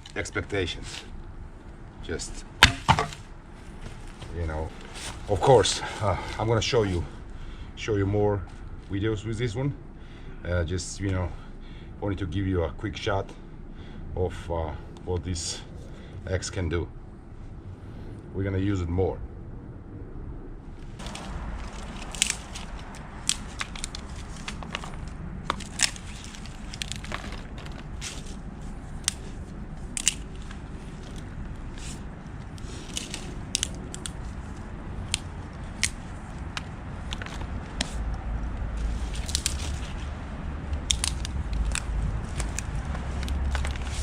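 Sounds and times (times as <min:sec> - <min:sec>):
low rumble: 0:16.8 - 0:44.0
wood fire crackling: 0:20.9 - 0:44.0.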